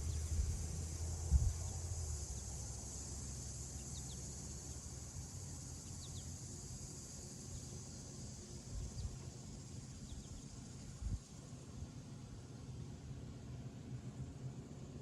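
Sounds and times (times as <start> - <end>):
insect chirring: 0.0 - 11.4.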